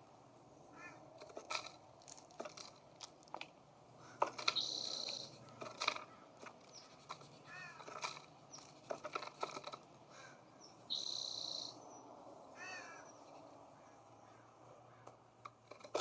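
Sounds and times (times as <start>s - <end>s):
harsh bird calls: 0.6s - 1.2s, 3.9s - 9.0s, 10.1s - 15.3s
buzzy high bird call: 4.5s - 5.4s, 10.9s - 11.8s.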